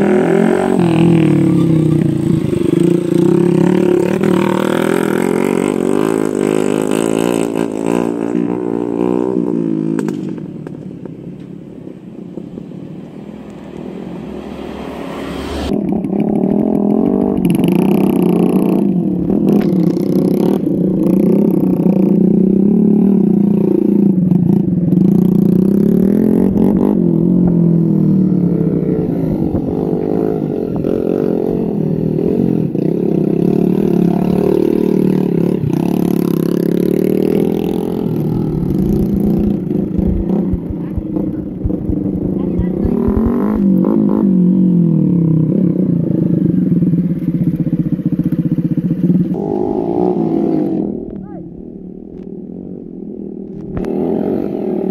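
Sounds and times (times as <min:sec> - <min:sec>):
motorbike engine running: 0:15.7 - 0:50.5.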